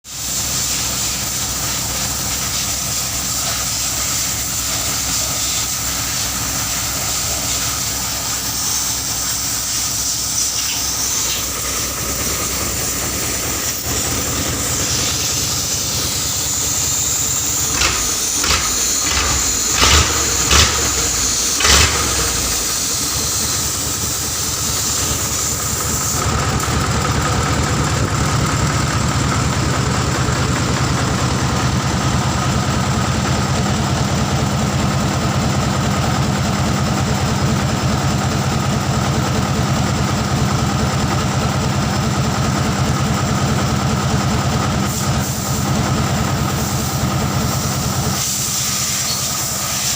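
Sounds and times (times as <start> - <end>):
diesel truck engine running: 0.1 - 49.9
short loud bursts: 14.9 - 23.8.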